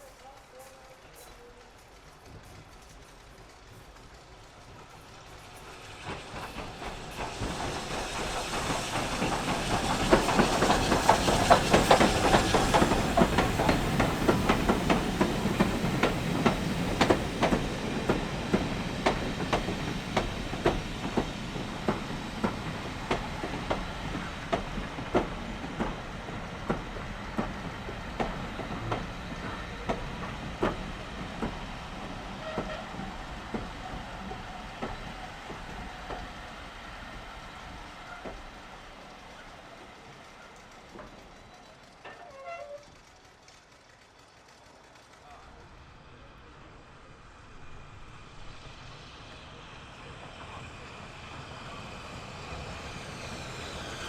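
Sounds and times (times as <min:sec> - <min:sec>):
wheels clickety-clack on rail joints: 0:00.0 - 0:46.8, 0:47.8 - 0:54.0
train passing: 0:00.0 - 0:54.0.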